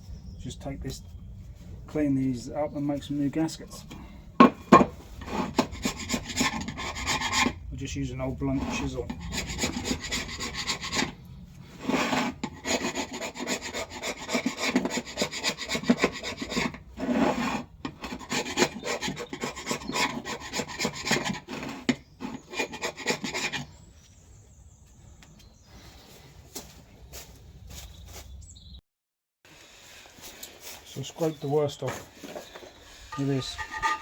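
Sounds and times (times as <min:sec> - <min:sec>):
chisel scraping metal: 0:04.4 - 0:07.6, 0:08.6 - 0:11.2, 0:11.8 - 0:23.8, 0:33.1 - 0:34.0.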